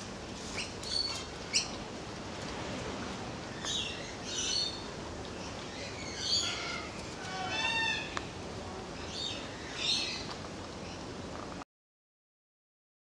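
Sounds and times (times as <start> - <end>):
steady background noise: 0.0 - 11.6.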